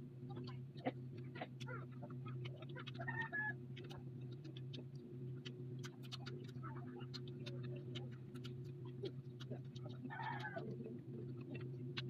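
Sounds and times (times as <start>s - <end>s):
low electrical hum: 0.0s - 12.0s
chewing and mouth smacks: 3.8s - 10.8s.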